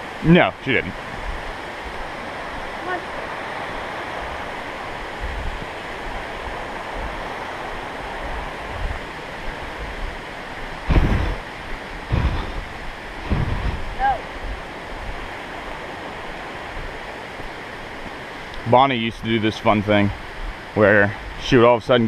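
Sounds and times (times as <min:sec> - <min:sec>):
creek water flowing: 0:00.0 - 0:22.0
short low thumps: 0:10.8 - 0:14.6.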